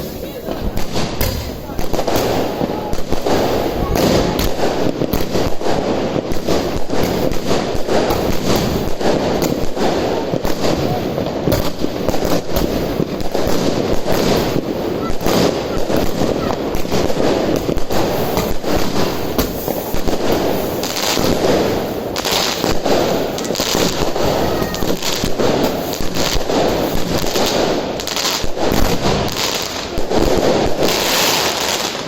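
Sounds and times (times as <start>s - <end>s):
firework crackles and pops: 0.0s - 32.0s
firework rushing noise: 0.0s - 32.0s.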